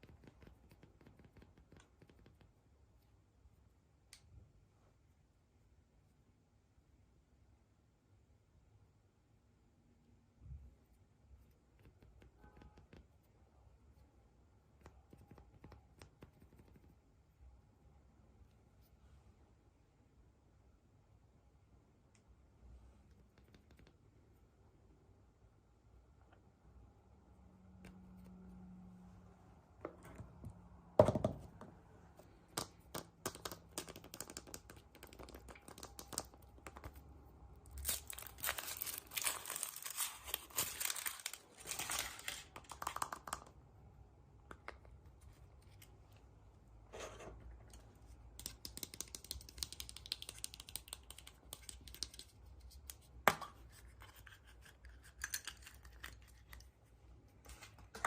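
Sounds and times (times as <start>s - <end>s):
small clicks and taps: 32.5s - 37.0s, 47.6s - 53.5s
packaging tearing and crinkling: 37.8s - 42.5s.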